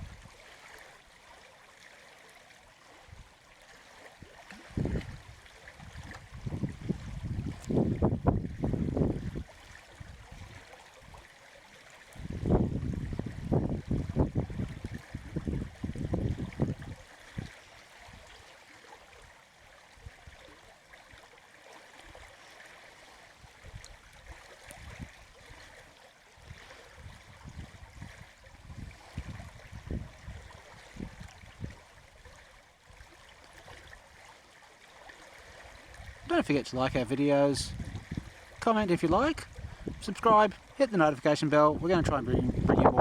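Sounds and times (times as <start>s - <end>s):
creek water flowing: 0.0s - 43.0s.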